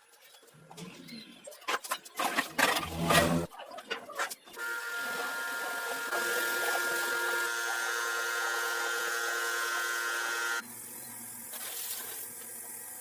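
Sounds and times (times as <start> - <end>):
small electric motor whining: 4.6 - 11.1.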